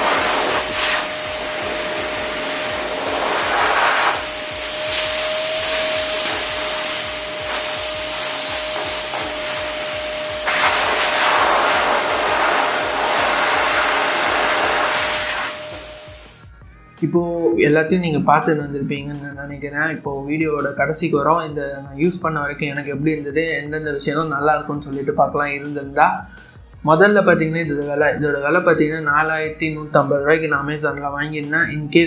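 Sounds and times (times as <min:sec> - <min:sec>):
rushing air: 0:00.0 - 0:16.4
vacuum cleaner blower motor whine: 0:00.0 - 0:16.5.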